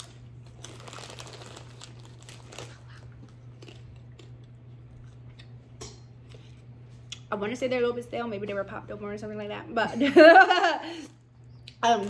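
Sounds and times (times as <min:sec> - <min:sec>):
chewing crunchy snacks: 0:00.0 - 0:07.3.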